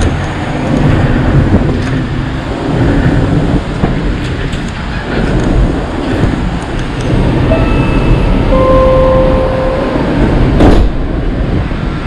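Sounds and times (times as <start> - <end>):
train rumble from inside car: 0.0 - 12.0.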